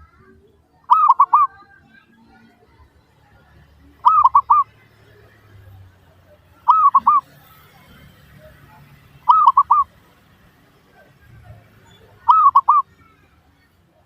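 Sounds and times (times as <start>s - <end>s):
dove cooing: 0.8s - 1.6s, 4.0s - 4.8s, 6.5s - 7.5s, 9.2s - 10.0s, 11.9s - 13.0s.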